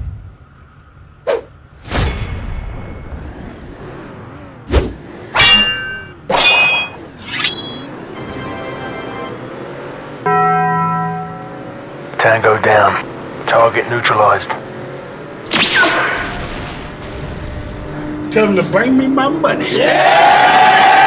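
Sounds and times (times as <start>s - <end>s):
sharp metallic clangs ringing: 5.3s - 7.9s, 10.3s - 11.6s, 15.5s - 16.7s.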